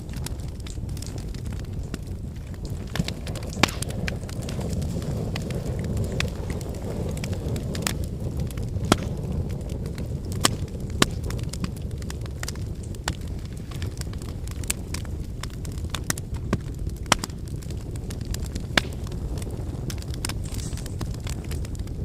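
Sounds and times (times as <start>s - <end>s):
cooking fire burning: 0.0s - 22.0s
fire crackling and popping: 0.0s - 22.0s.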